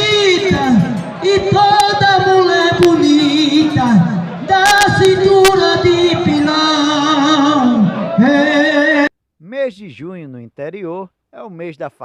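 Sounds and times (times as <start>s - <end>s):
person singing herding call: 0.0s - 9.1s.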